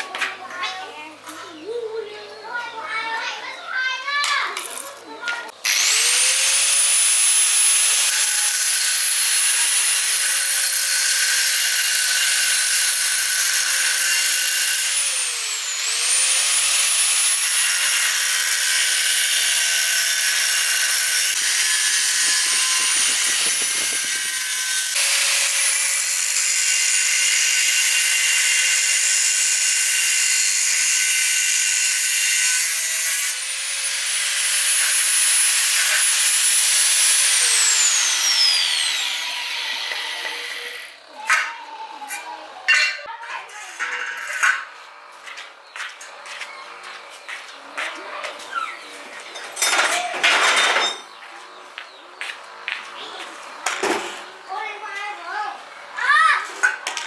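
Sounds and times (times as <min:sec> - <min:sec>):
power tool motor whine: 0:05.6 - 0:41.1.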